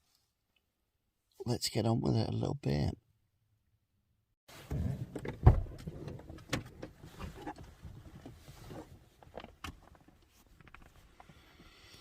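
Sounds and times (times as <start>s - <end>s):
clicks and knocks inside car: 4.7s - 11.5s.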